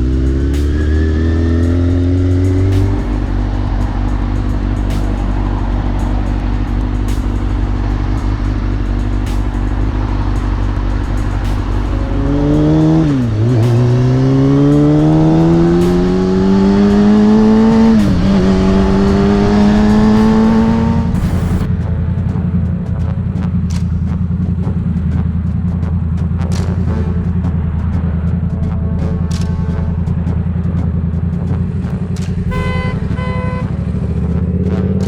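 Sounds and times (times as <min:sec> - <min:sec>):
motorcycle engine accelerating: 0:00.0 - 0:35.0.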